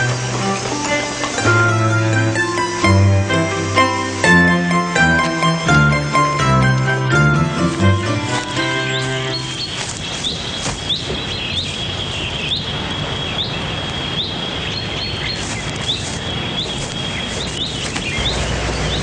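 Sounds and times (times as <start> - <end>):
background hiss: 0.0 - 19.0
bird rising chirp: 8.2 - 19.0.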